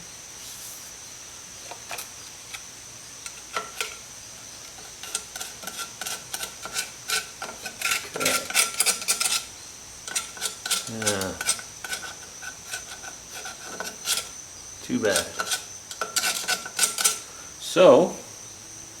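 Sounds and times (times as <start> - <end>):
metal tools clinking on wheel hub: 15.0 - 17.2.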